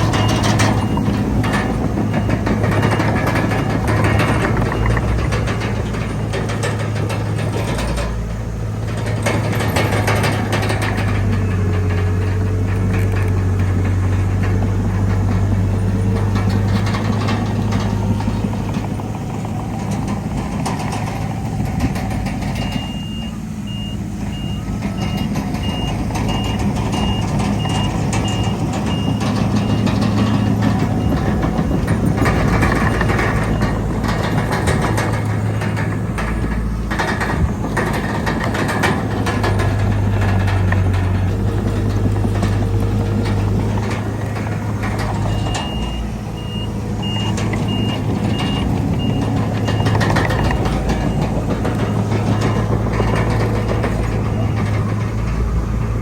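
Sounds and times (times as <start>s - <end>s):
reversing alarm beeping: 0.0s - 40.2s, 43.2s - 55.8s
diesel earthmoving machinery: 0.0s - 56.0s.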